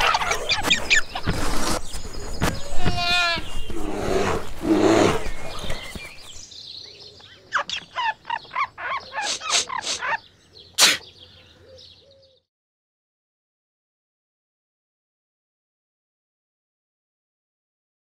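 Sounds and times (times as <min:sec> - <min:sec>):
rapid bird chirps: 0:07.3 - 0:12.4.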